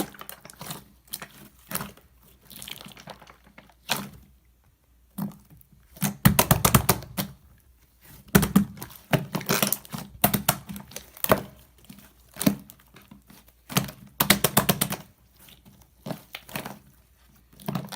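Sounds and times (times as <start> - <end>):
slime clicking and popping: 13.7 - 15.0.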